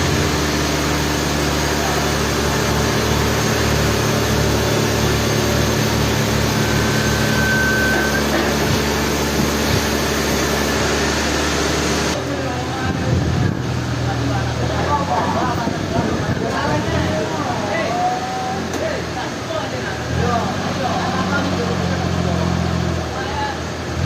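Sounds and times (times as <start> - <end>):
heavy machinery humming: 0.0 - 24.0
short high tone: 1.7 - 11.4.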